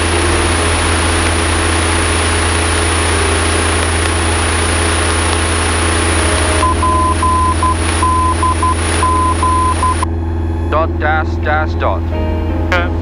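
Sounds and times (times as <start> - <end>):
small plane engine drone: 0.0 - 13.0
morse code tone: 6.2 - 10.1.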